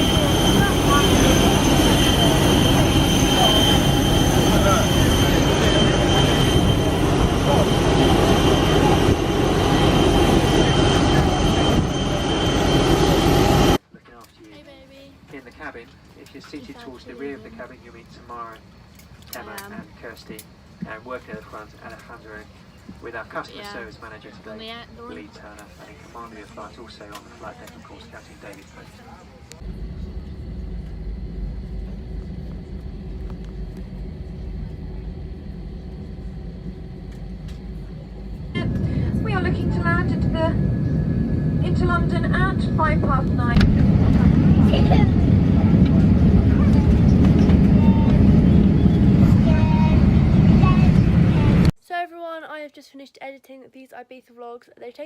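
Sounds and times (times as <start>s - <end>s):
jet airliner cabin engine noise: 0.0s - 13.8s, 19.2s - 51.8s
thin high whine: 0.0s - 13.8s.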